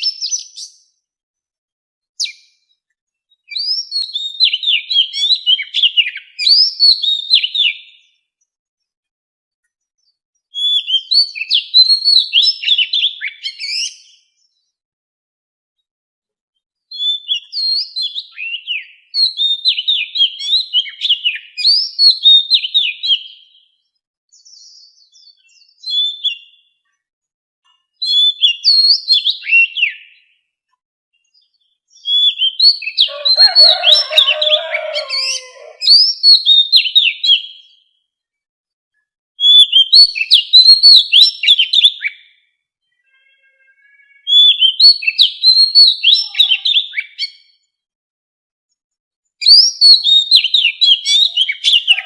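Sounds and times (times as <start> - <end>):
magpie-robin whistled song: 0.0 - 1.0, 2.2 - 8.3, 10.1 - 14.6, 16.9 - 26.9, 27.9 - 30.4, 31.2 - 38.0, 39.4 - 42.5, 43.8 - 47.7, 49.4 - 52.0
lower bird warbling: 33.0 - 36.0.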